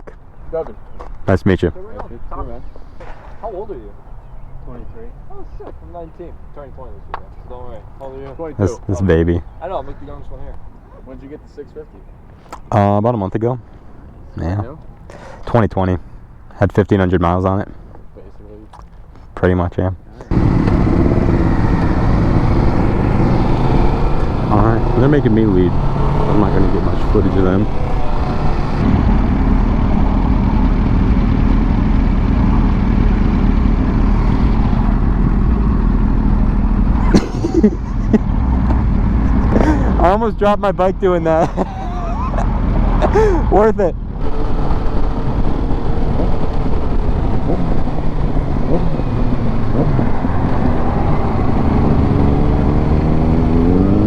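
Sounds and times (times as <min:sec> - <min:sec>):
motorcycle engine running: 0:20.3 - 0:40.2, 0:40.8 - 0:54.0
wind noise: 0:41.5 - 0:54.0.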